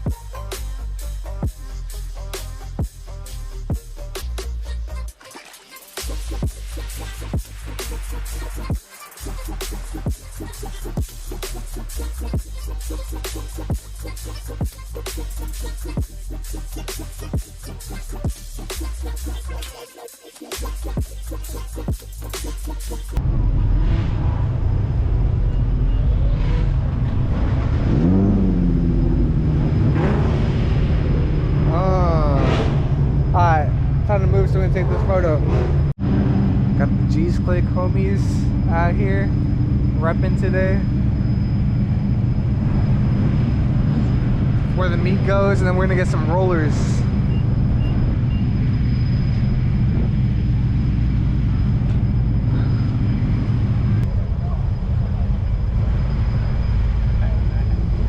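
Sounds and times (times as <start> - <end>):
car engine running: 20.6 - 58.0.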